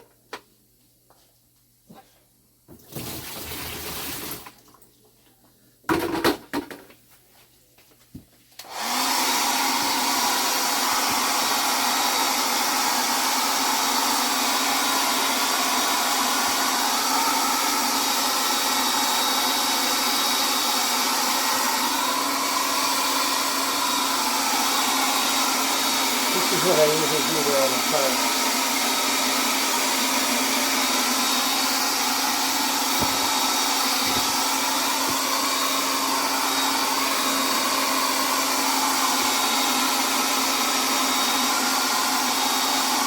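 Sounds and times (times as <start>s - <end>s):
hair dryer running: 8.6s - 43.0s.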